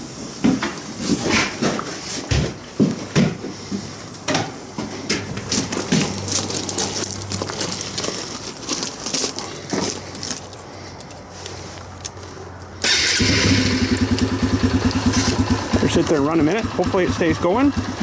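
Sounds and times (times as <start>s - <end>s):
motorcycle engine starting and idling: 12.8s - 18.0s.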